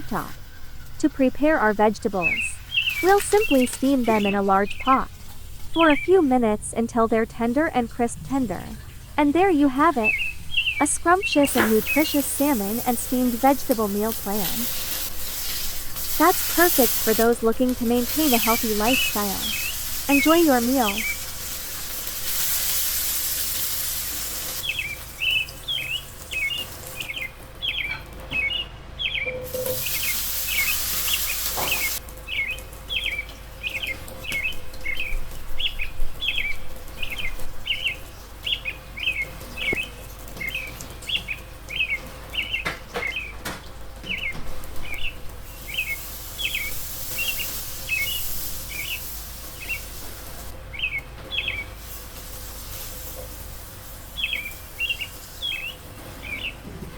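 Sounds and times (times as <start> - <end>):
bird chirping: 0.0 - 21.4, 50.7 - 51.8, 54.2 - 56.6
steady hiss: 10.2 - 27.0, 29.5 - 32.1, 45.3 - 50.6, 51.7 - 55.8.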